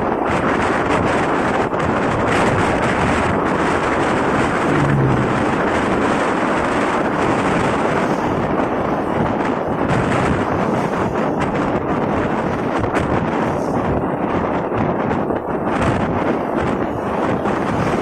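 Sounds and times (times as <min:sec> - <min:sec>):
wind rushing over microphone: 0:00.0 - 0:18.0
traffic noise: 0:03.1 - 0:08.8
motorcycle engine: 0:04.5 - 0:06.4
short low tone: 0:04.6 - 0:06.0.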